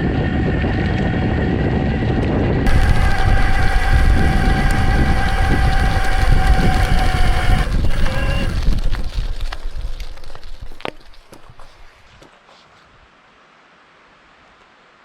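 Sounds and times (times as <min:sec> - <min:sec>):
high whine: 0:00.0 - 0:11.7
wind on microphone: 0:00.0 - 0:12.2
bike tyre rumble: 0:00.0 - 0:12.8.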